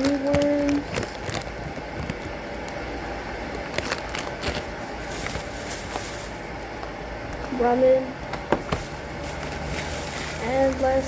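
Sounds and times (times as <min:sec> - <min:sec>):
snack packages rustling: 0:00.0 - 0:02.8, 0:03.5 - 0:06.9, 0:08.6 - 0:11.0
steady background hum: 0:00.0 - 0:11.0.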